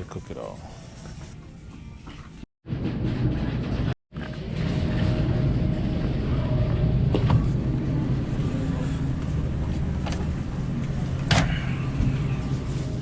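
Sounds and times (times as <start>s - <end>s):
car engine rumble: 4.4s - 13.0s
road noise: 4.4s - 13.0s.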